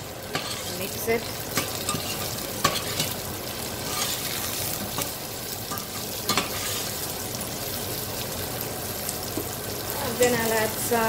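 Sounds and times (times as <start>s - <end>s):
okra sizzling in oil: 0.0s - 11.0s
spoon knocking and scraping pan: 0.3s - 0.8s, 1.6s - 3.2s, 3.9s - 6.9s.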